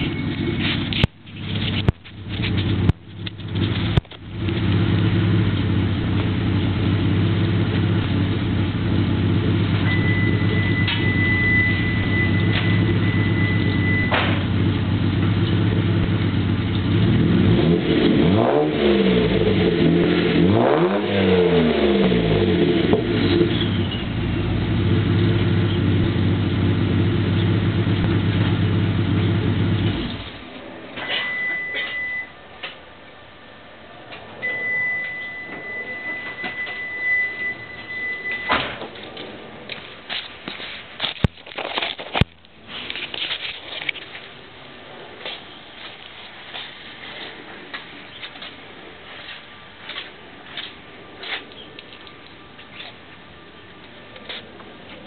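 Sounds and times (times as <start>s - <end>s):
engine revving: 0.0s - 30.4s
car engine starting and idling: 0.0s - 55.0s.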